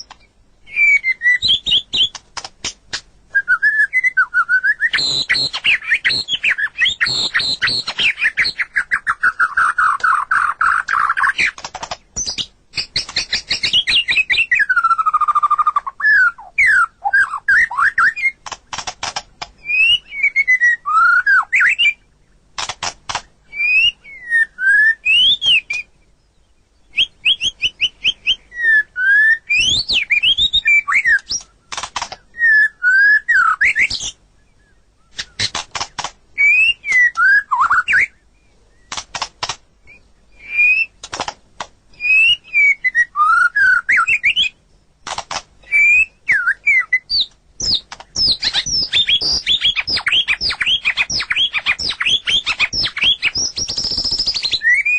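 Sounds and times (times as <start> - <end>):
sharp clicks: 0.0 - 0.3, 2.0 - 3.1, 7.0 - 8.6, 9.3 - 13.9, 18.1 - 19.6, 22.5 - 23.3, 31.1 - 32.3, 35.1 - 36.2, 38.9 - 39.7, 41.0 - 41.8, 45.0 - 45.7, 47.1 - 54.6
bird singing whistled phrases: 0.0 - 2.2, 3.3 - 11.6, 12.2 - 18.4, 19.6 - 22.1, 23.5 - 26.0, 26.9 - 35.5, 36.4 - 38.9, 39.9 - 41.0, 42.0 - 44.6, 45.6 - 54.9.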